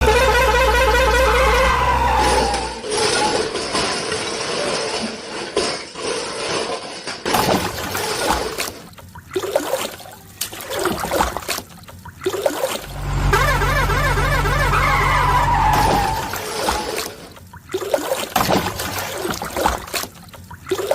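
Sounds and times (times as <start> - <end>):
truck engine humming: 0.0 - 2.8, 12.8 - 17.6
water splashing and churning: 7.3 - 20.9.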